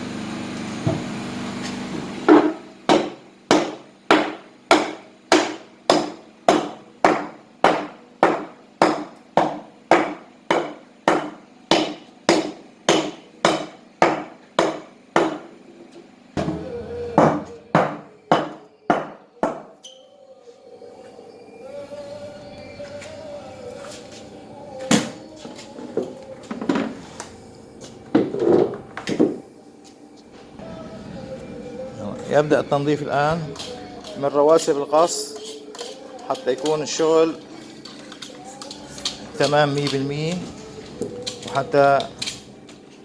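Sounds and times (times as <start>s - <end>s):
hammer striking metal: 2.3s - 15.5s, 16.4s - 19.8s.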